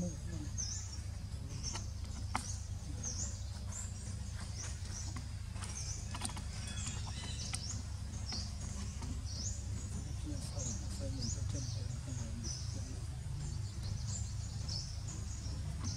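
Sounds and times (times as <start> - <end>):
steady low rumble: 0.0 - 15.9
faint clicks: 4.6 - 10.0.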